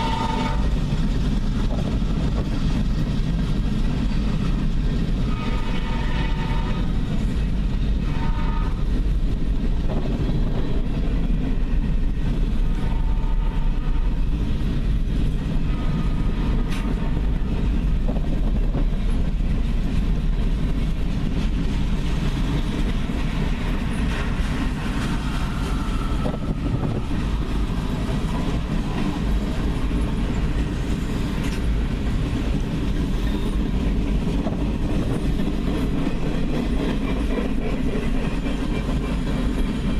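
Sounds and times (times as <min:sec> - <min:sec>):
train air horn blasts: 0:00.0 - 0:00.8, 0:05.2 - 0:07.0, 0:08.0 - 0:08.9, 0:12.6 - 0:14.3
freight train rumbling: 0:00.0 - 0:39.9.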